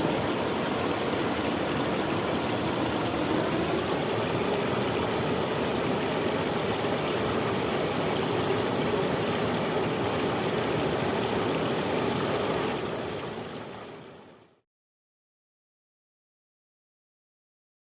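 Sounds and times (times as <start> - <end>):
running water rushing: 0.0 - 14.4.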